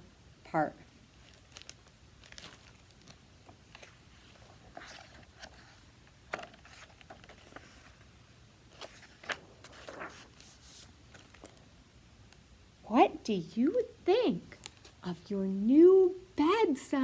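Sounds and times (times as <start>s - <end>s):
book pages turning: 1.2s - 11.7s, 14.6s - 15.1s.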